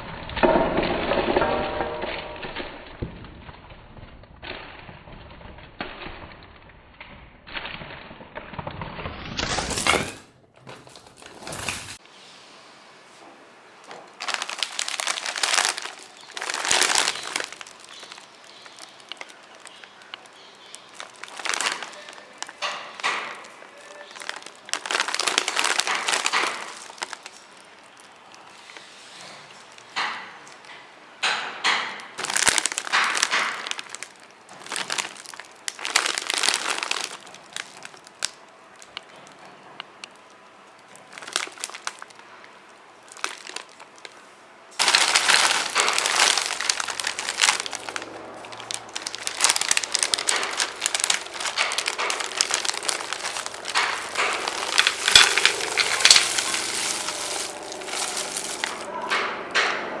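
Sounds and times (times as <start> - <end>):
candy wrapper crinkling: 13.8 - 30.7, 32.2 - 39.4, 40.0 - 58.9.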